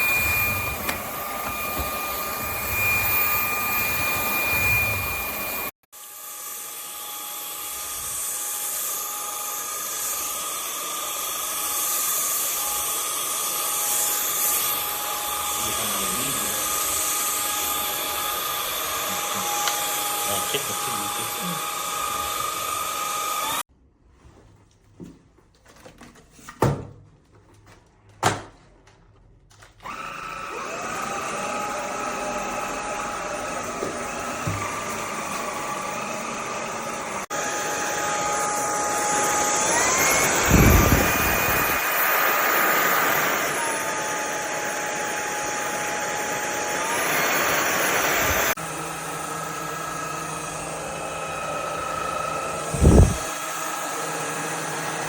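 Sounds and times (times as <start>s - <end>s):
stick vacuum motor whining: 0.0s - 23.6s, 29.8s - 55.0s.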